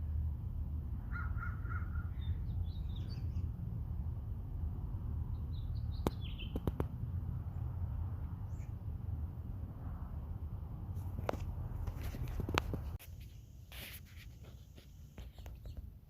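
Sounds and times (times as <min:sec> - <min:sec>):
steady low rumble: 0:00.0 - 0:13.7
birds calling: 0:01.1 - 0:03.6, 0:05.3 - 0:06.9
high bird chirps: 0:05.3 - 0:06.7
sharp clicks: 0:06.0 - 0:07.0.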